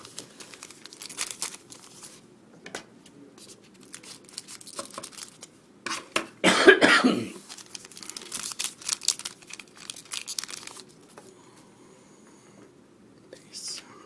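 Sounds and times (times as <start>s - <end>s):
wrapper crinkling and tearing: 0.0s - 2.2s, 3.6s - 5.5s, 7.4s - 11.2s.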